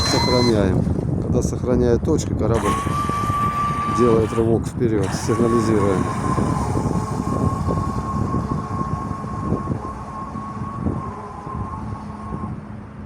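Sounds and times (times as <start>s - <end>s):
high-pitched signal tone: 0.0s - 0.7s
wind rumble on microphone: 0.0s - 13.0s.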